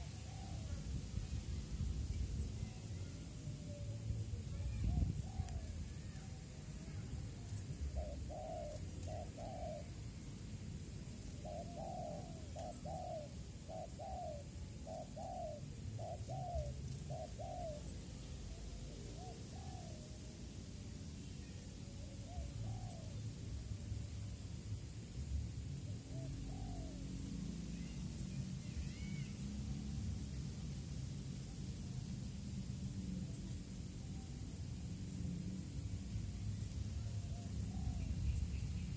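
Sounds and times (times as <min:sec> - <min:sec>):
doves cooing: 0:07.8 - 0:10.0, 0:11.3 - 0:20.0.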